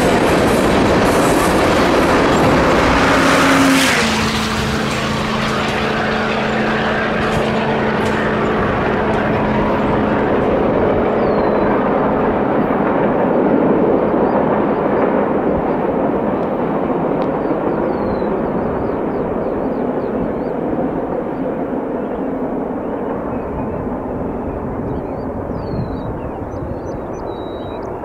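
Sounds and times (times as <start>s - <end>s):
freight train wheels on rails: 0.0s - 21.8s.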